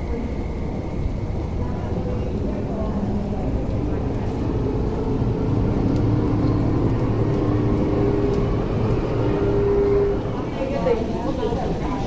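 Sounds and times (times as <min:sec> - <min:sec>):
electric train rumbling past: 0:00.0 - 0:12.0
train motor hum: 0:01.4 - 0:12.0.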